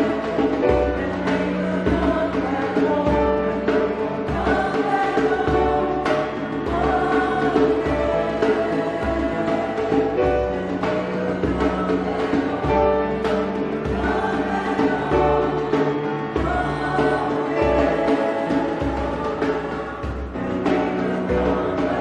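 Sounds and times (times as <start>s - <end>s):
choir singing: 0.0s - 22.0s.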